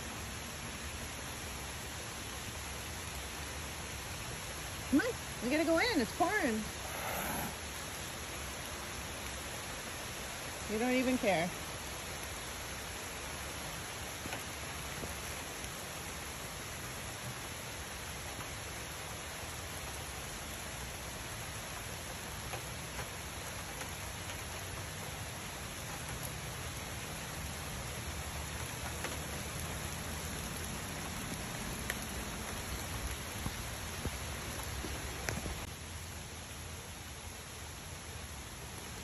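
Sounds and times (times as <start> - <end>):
heavy rain pouring: 0.0 - 39.0.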